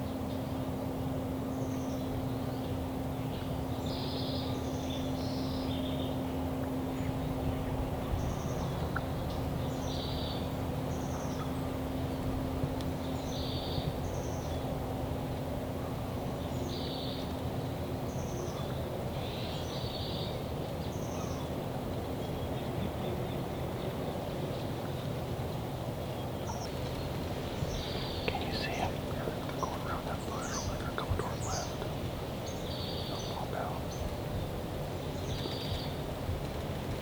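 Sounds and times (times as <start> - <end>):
outdoor background noise: 0.0 - 37.0
small songbird singing: 8.0 - 11.8, 13.0 - 14.7, 26.1 - 36.0.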